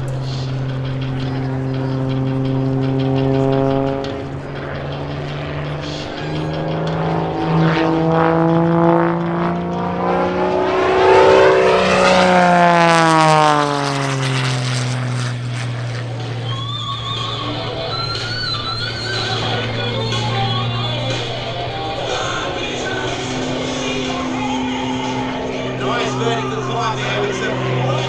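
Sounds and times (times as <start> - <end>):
music with electric guitar: 0.0 - 8.2, 16.2 - 28.0
propeller plane engine droning: 0.0 - 28.0.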